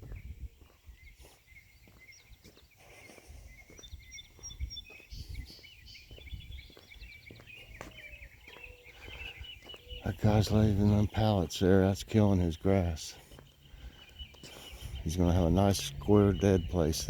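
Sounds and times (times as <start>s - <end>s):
soft footsteps walking: 0.0s - 10.2s, 13.1s - 15.0s
songbirds chirping and trilling: 0.0s - 17.0s.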